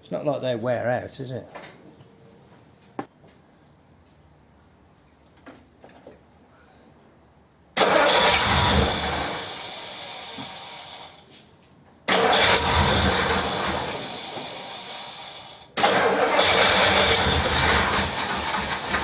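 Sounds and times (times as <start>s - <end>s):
car engine starting: 7.8s - 11.3s, 12.1s - 19.0s.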